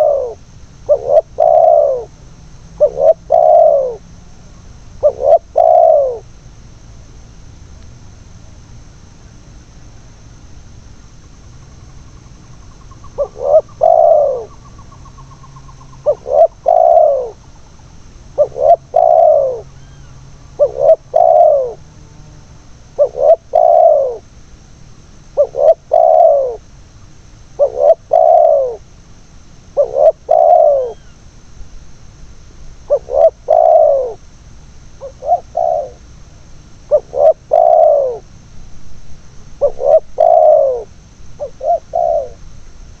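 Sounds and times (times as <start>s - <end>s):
dove cooing: 0.0s - 6.3s, 12.5s - 22.0s, 22.7s - 24.3s, 25.3s - 26.7s, 27.5s - 28.9s, 29.7s - 31.2s, 32.8s - 34.3s, 35.0s - 38.3s, 39.4s - 42.5s.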